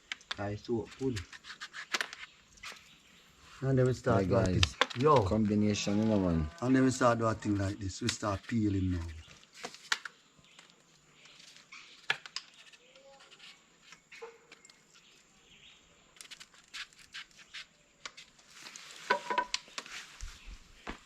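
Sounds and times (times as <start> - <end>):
knife scraping fruit rind: 0.8 - 2.9, 16.2 - 18.3.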